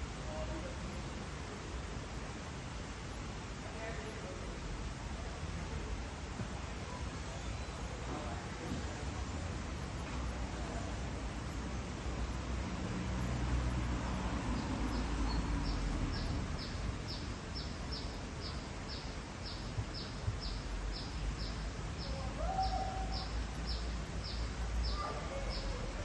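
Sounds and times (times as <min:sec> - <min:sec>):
bird chirping: 0:14.6 - 0:26.0.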